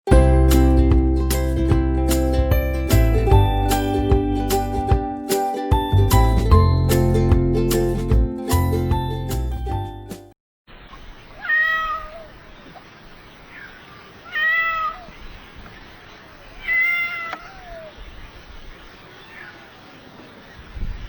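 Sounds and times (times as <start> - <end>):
jingle music: 0.1 - 10.3
cat meowing: 11.3 - 12.6, 13.5 - 15.3, 16.6 - 18.0.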